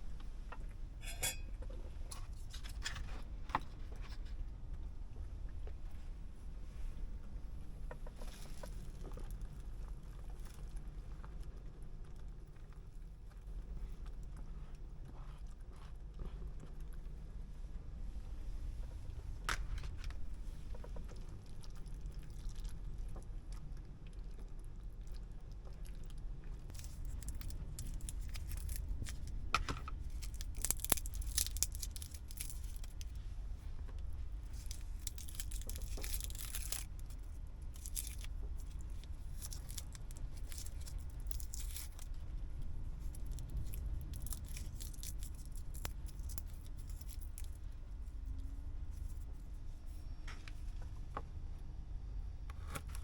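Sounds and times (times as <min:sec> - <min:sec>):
steady low hum: 0:00.0 - 0:53.0
packaging tearing and crinkling: 0:26.7 - 0:29.4, 0:30.0 - 0:33.1, 0:34.5 - 0:42.1, 0:43.0 - 0:47.6.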